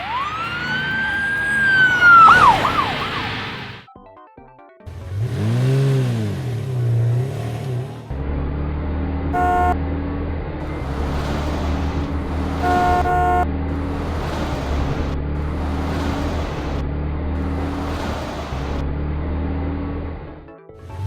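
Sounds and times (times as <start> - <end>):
truck engine droning: 0.0 - 3.9, 4.9 - 21.0
horn toots: 9.3 - 9.9, 10.7 - 15.0.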